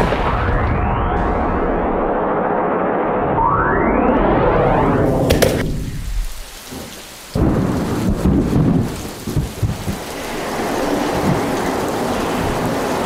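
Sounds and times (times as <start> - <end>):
thunder clap rumbling: 0.0 - 13.0
rain hissing: 5.2 - 13.0.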